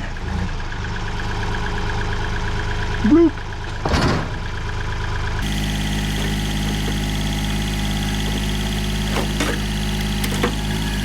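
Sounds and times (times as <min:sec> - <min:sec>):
tractor engine running: 0:04.5 - 0:11.0.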